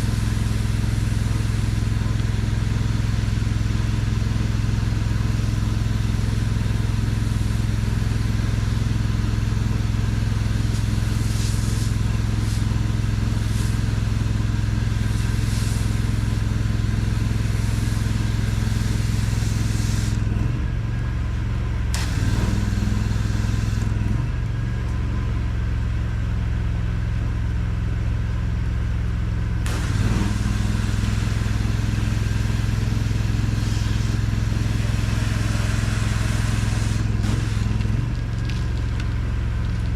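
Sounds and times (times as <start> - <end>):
pressure washer engine running: 0.0 - 24.9, 29.4 - 39.9
water spray hissing: 10.4 - 20.2, 29.7 - 38.0.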